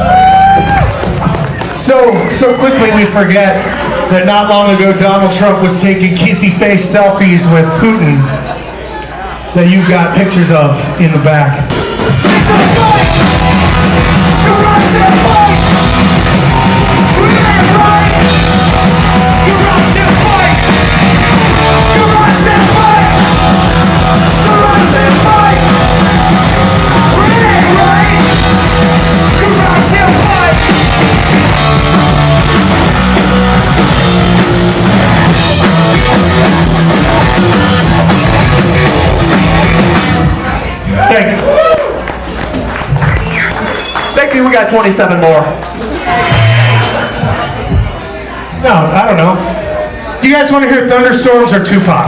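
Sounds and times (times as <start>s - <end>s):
live punk rock band: 11.7s - 40.4s.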